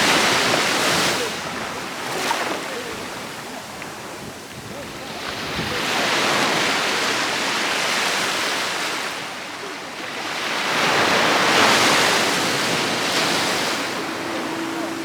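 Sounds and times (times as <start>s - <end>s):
sea waves breaking on beach: 0.0s - 15.0s.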